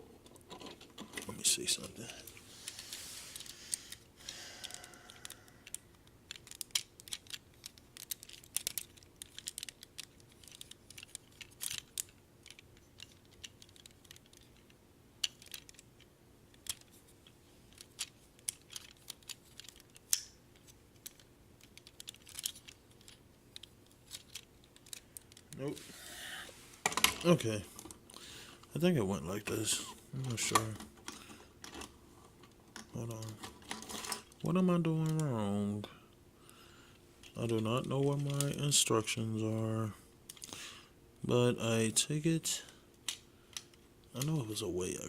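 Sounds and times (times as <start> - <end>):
plastic toy parts clicking: 4.6 - 17.0, 17.7 - 25.5, 40.3 - 40.5.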